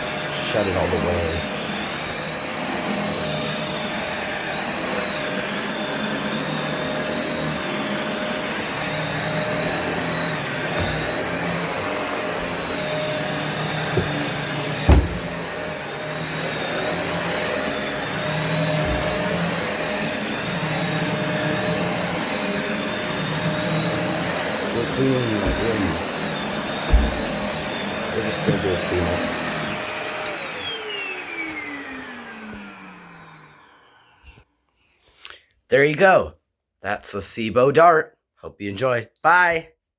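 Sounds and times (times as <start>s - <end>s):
vacuum cleaner running: 0.0s - 34.5s
dull thumps: 13.9s - 15.6s, 26.8s - 27.8s.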